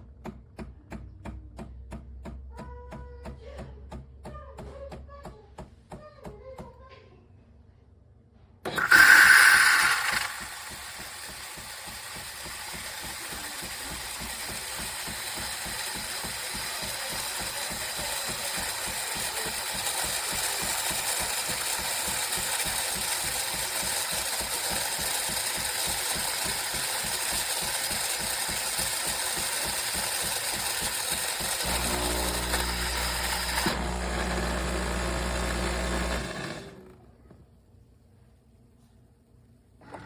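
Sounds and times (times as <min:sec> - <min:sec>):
espresso machine whirring: 0:08.7 - 0:37.1.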